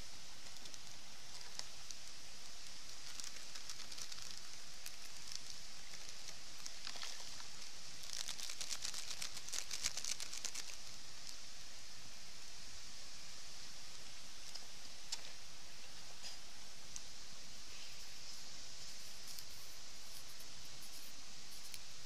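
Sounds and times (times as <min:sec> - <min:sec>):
campfire crackling: 0:00.0 - 0:11.5
steady hiss: 0:00.0 - 0:22.0.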